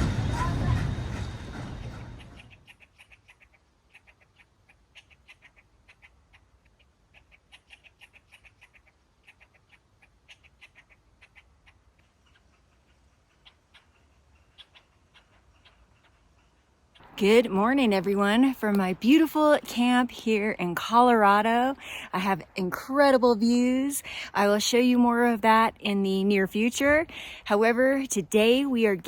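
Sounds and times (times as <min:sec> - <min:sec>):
small animal chirping: 0:02.3 - 0:17.2.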